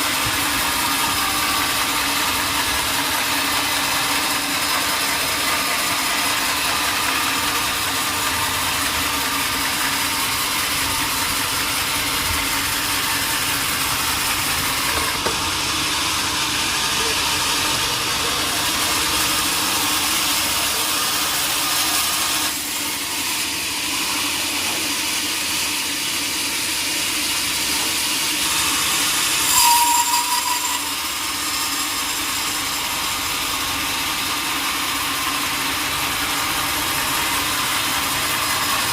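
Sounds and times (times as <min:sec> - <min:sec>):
sawmill machinery running: 0:00.0 - 0:38.9
machinery squeal: 0:28.7 - 0:32.6.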